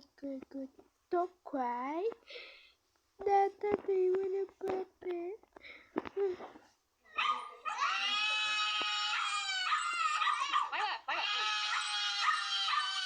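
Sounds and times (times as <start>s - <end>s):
puppy howling: 7.1s - 13.0s
puppy whining: 7.1s - 13.0s.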